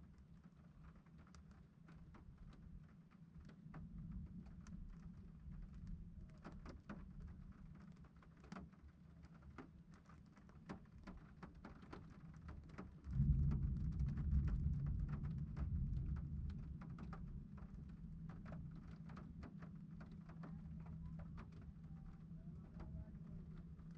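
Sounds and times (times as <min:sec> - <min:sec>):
raindrops ticking: 0:00.4 - 0:23.9
thunder rumbling: 0:13.1 - 0:18.1.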